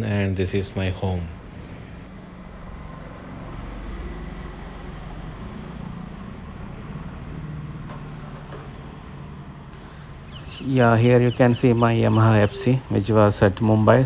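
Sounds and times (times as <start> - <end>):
vehicle engine rumbling: 9.8 - 14.0.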